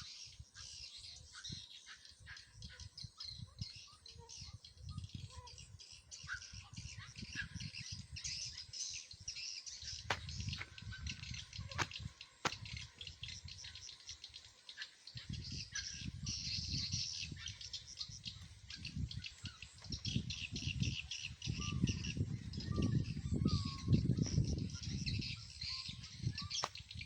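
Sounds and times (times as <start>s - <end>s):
small birds chirping and twittering: 0.0s - 27.0s.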